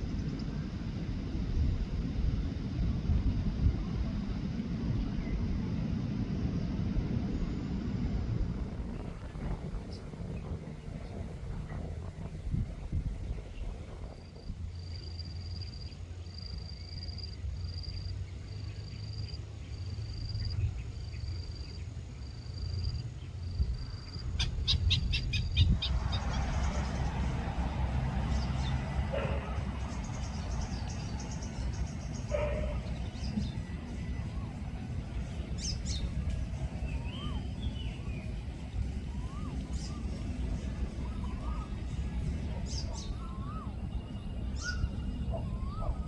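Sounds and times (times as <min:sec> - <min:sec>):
steady low rumble: 0:00.0 - 0:46.0
rushing noise: 0:06.0 - 0:15.5, 0:25.3 - 0:32.8.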